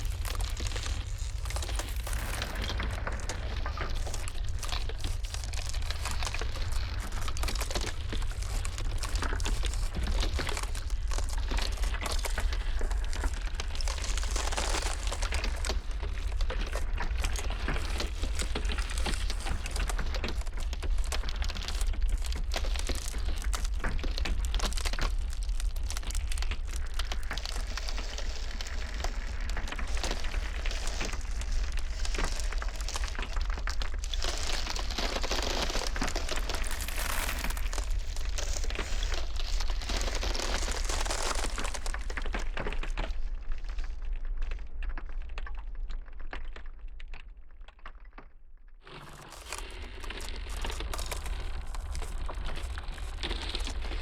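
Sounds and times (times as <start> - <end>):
low rumble: 0.0 - 16.3
ice crackling and snapping: 0.0 - 54.0.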